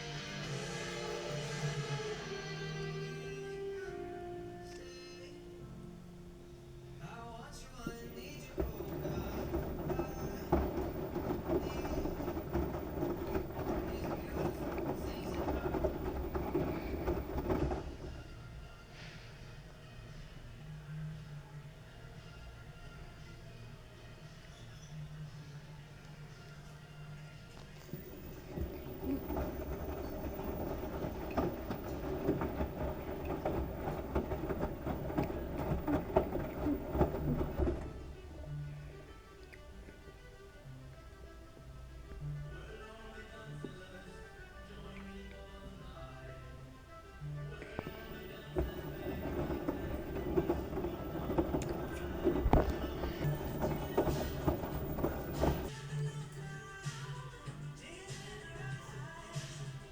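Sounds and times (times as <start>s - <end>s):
washing machine rumbling: 7.0s - 19.0s, 27.6s - 40.1s, 41.2s - 55.8s
low motor hum: 7.8s - 18.8s, 27.8s - 40.5s, 47.2s - 55.7s.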